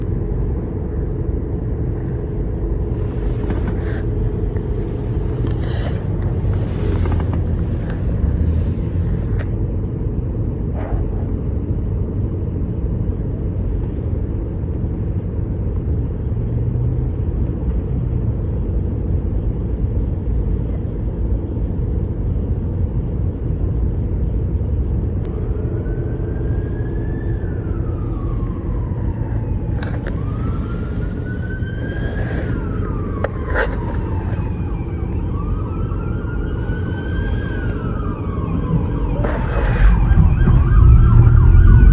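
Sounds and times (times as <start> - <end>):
traffic and engine rumble: 0.0 - 41.9
emergency siren wailing: 25.3 - 41.9.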